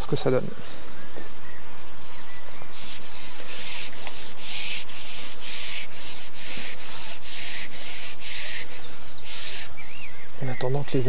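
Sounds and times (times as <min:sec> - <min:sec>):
loud rhythmic rasping: 0:02.8 - 0:11.0.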